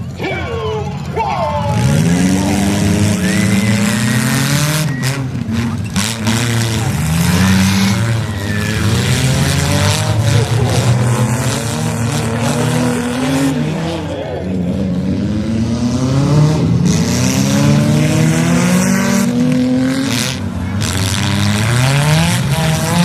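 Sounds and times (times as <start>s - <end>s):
car engines revving hard: 0.0s - 23.0s.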